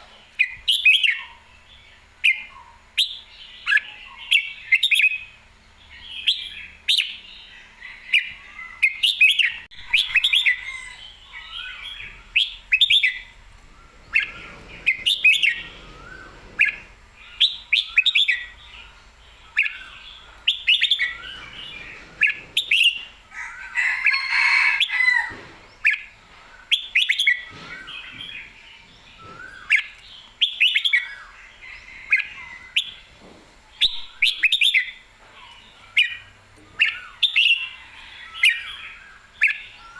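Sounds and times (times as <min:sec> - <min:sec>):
bulbul singing: 0:08.2 - 0:33.1.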